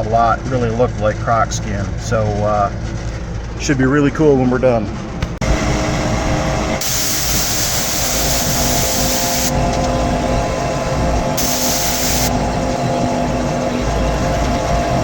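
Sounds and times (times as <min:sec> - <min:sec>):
machine humming: 0:05.2 - 0:15.0
loud hissing air or spray: 0:06.8 - 0:09.5, 0:11.4 - 0:12.3.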